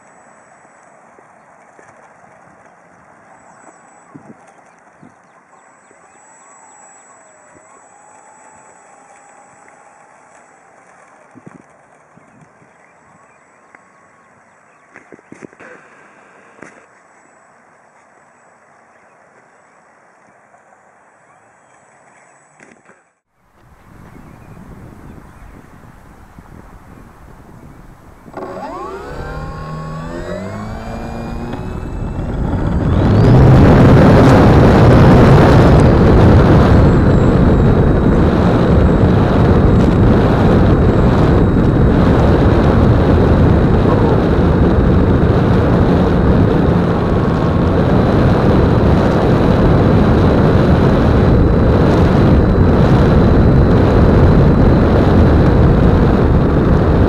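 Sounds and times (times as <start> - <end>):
electric motor whine rising: 0.0 - 2.0, 3.2 - 12.4, 23.6 - 57.0
motor propeller and wind rush: 0.0 - 17.3, 21.4 - 57.0.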